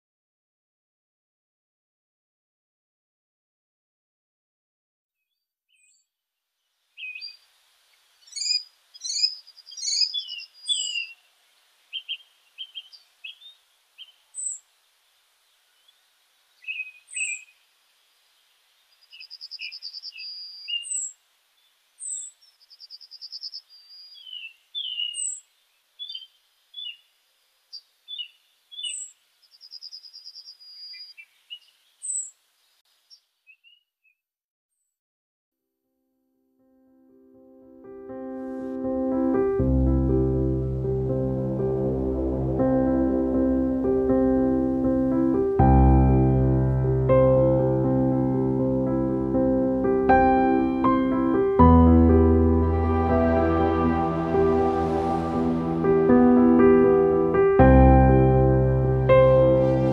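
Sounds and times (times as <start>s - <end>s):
rapid bird trill: 8.2s - 11.2s
birds chirping and whistling: 8.3s - 11.2s, 16.6s - 17.5s, 19.1s - 21.1s, 22.0s - 25.4s, 28.1s - 32.3s.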